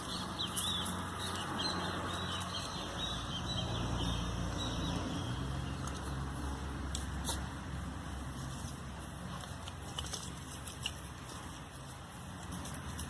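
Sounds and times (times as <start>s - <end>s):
bird chirping: 0.0s - 6.2s.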